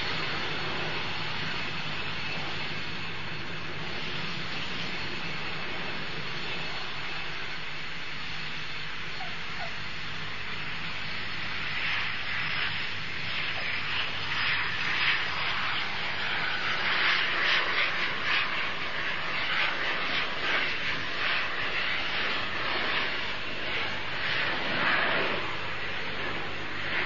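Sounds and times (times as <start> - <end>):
jet engine roar: 0.0 - 27.0.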